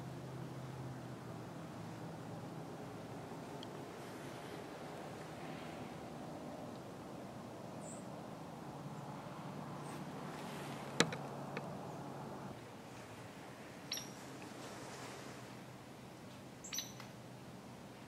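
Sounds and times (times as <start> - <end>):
high bird chirps: 13.9 - 14.2, 16.6 - 17.0.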